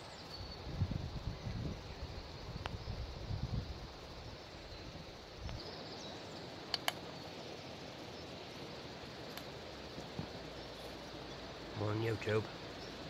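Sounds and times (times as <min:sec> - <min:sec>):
wind rumbling on microphone: 0:00.0 - 0:05.7
steady hiss: 0:00.0 - 0:13.0
sharp clicks: 0:06.7 - 0:07.0.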